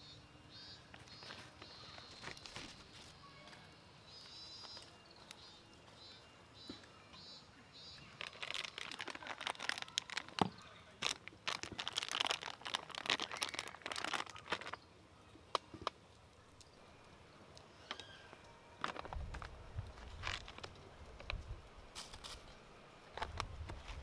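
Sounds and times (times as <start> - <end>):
crinkling handling noise: 0.9 - 6.0, 8.0 - 14.8, 17.9 - 24.0.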